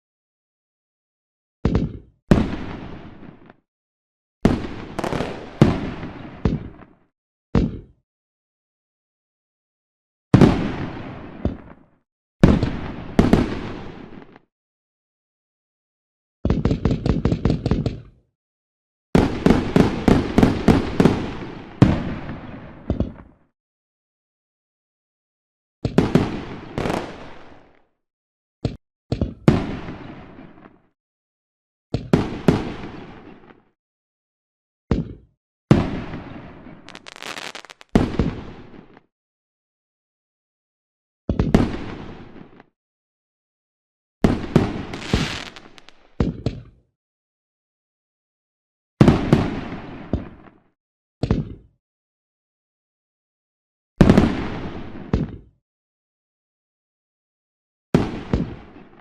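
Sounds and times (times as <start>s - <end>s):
fireworks bangs: 4.5s - 6.9s, 26.0s - 27.8s, 35.8s - 39.0s, 44.2s - 46.3s
fireworks crackle: 36.9s - 38.1s, 44.6s - 46.2s
fireworks banging: 36.9s - 38.6s, 44.3s - 46.4s.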